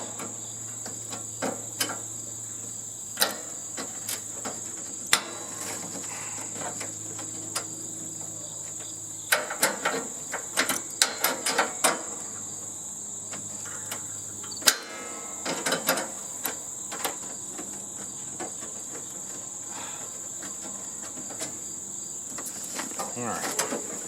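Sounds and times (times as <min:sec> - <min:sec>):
metallic knocks and clicks: 0:09.3 - 0:12.2, 0:13.3 - 0:17.2.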